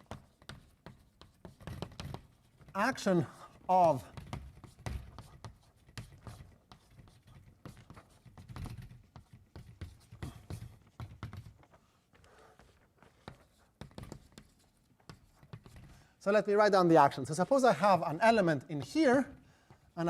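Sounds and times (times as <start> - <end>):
writing taps on a board: 0.0 - 2.8, 4.1 - 16.0.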